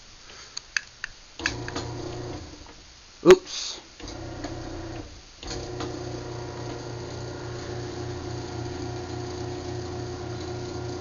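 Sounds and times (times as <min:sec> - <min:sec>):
garage door opener motor humming: 0:01.4 - 0:02.8, 0:04.0 - 0:11.0.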